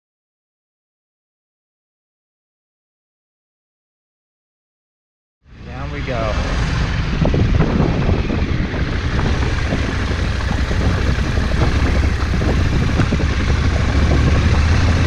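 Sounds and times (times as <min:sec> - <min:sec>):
vehicle engine drone: 0:05.4 - 0:15.0
wind and road noise: 0:05.4 - 0:15.0.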